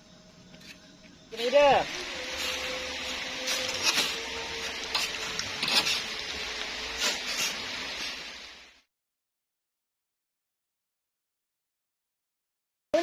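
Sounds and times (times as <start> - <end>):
steady hiss: 1.3 - 8.8
shovel scraping sand: 1.4 - 8.4.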